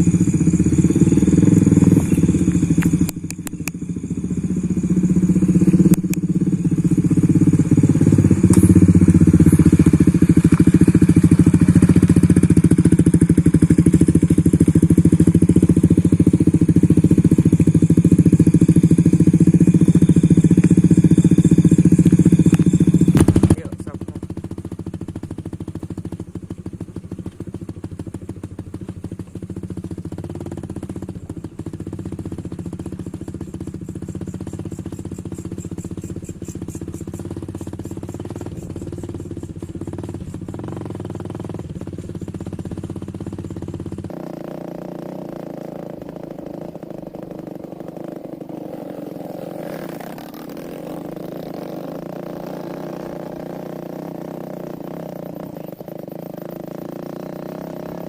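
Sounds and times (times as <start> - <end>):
high-pitched steady drone: 0.0 - 24.3
motorcycle engine running: 0.0 - 58.0.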